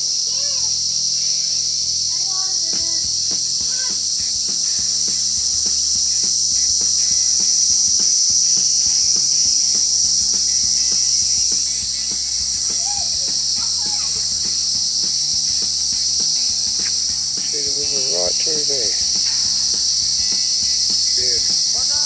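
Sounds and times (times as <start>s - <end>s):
insects droning: 0.0s - 22.0s
bird call: 2.7s - 8.0s, 10.3s - 22.0s
footsteps on walkway: 11.5s - 22.0s.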